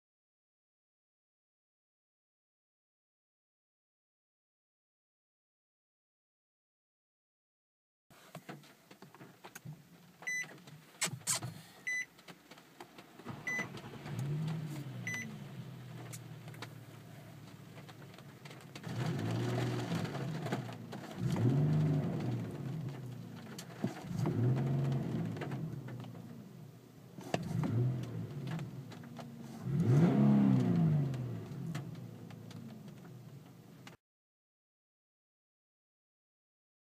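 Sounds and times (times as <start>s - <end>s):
car engine revving: 13.1s - 26.4s, 27.2s - 33.6s.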